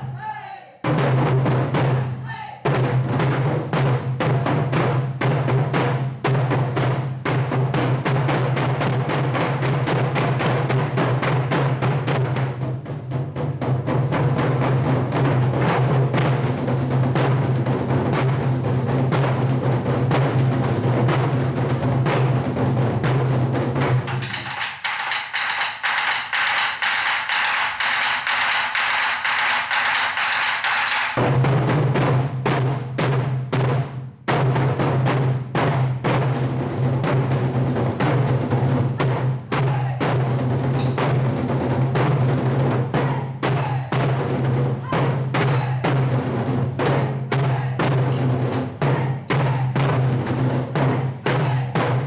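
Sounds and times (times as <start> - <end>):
percussion ensemble drumming: 0.0 - 52.0.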